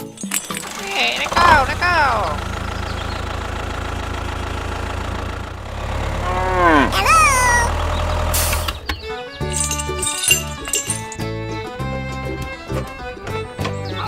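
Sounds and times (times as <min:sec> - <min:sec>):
cow mooing: 0:05.7 - 0:07.8
music with held notes: 0:08.8 - 0:14.0.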